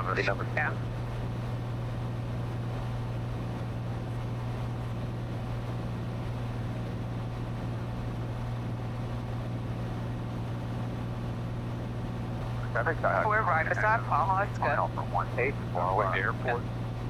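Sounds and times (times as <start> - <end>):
airplane engine and propeller drone: 0.0 - 17.0.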